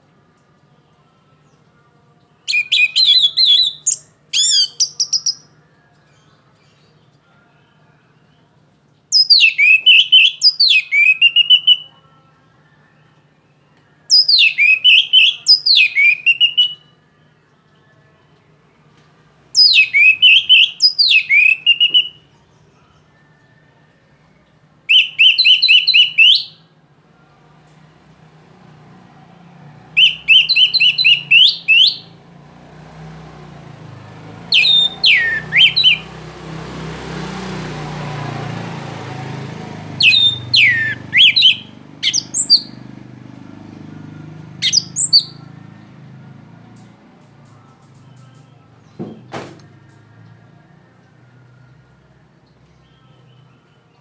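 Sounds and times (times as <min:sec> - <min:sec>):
thrush singing: 0:00.0 - 0:54.0.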